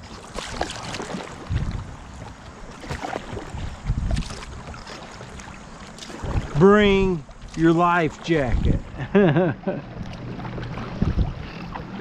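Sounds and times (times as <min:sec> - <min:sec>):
paddle strokes in water: 0:00.0 - 0:12.0
wind buffeting microphone: 0:01.2 - 0:04.8, 0:06.1 - 0:09.2, 0:10.0 - 0:12.0.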